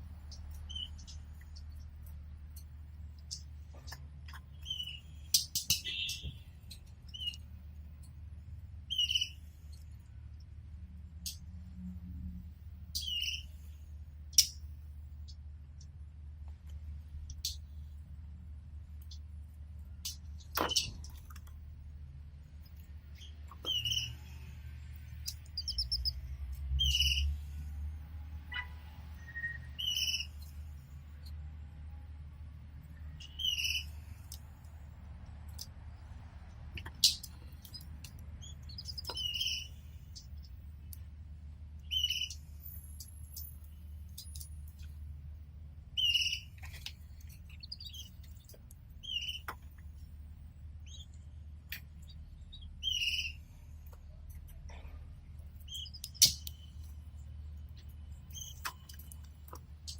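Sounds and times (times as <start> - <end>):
canaries chirping: 0.2 - 2.6, 3.3 - 7.4, 8.9 - 9.4, 13.0 - 13.5, 23.2 - 24.5, 25.2 - 27.4, 28.5 - 30.5, 33.2 - 34.2, 36.8 - 40.6, 41.8 - 43.4, 46.0 - 46.6, 47.5 - 49.6, 52.0 - 53.5, 58.3 - 59.0
bird trill: 4.6 - 6.4, 8.9 - 9.4, 13.0 - 13.5, 23.2 - 24.2, 29.2 - 30.4, 33.2 - 34.0, 38.4 - 40.3, 41.8 - 42.4, 46.0 - 46.5, 49.0 - 49.5, 52.5 - 53.4.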